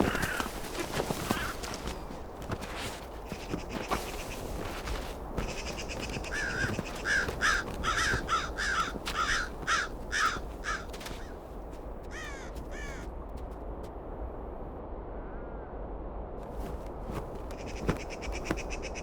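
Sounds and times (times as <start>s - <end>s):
crow cawing: 0.0s - 11.4s, 12.1s - 13.1s, 17.5s - 19.0s.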